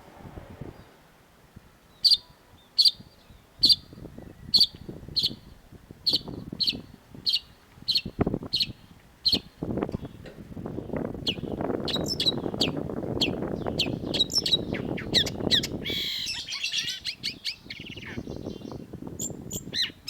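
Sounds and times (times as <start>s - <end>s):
faint low rumble: 0.0s - 2.5s
bird calling sharp notes: 11.2s - 18.4s.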